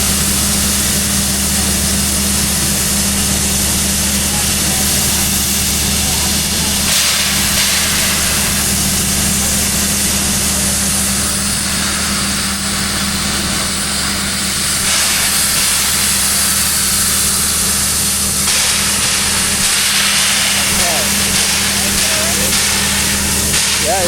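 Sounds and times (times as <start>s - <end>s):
steam locomotive hissing: 0.0s - 24.0s.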